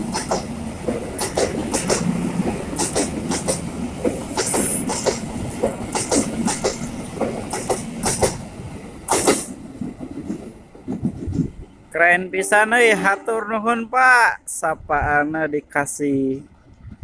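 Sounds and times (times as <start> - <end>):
train clank: 0.0 - 11.7
train wheels clicking over rail joints: 0.0 - 11.8
train rumble: 0.0 - 17.0.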